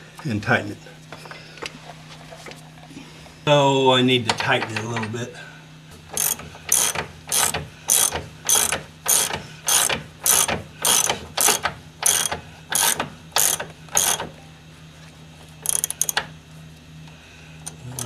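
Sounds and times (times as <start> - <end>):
ratchet wrench clicking: 6.1 - 14.3, 15.6 - 16.3.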